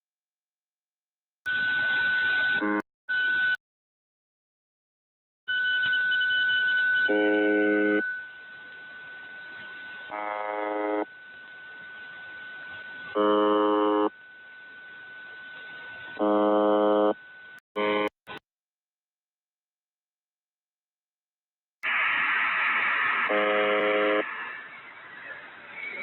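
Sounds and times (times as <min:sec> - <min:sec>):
radio hiss: 0:21.8 - 0:26.0
steady high whistle: 0:21.8 - 0:26.0.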